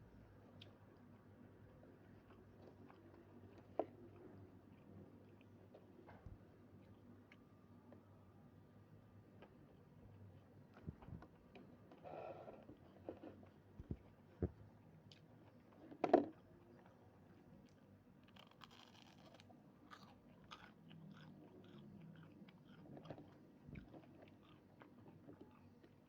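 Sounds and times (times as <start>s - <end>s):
person chewing crunchy food: 17.6s - 26.0s.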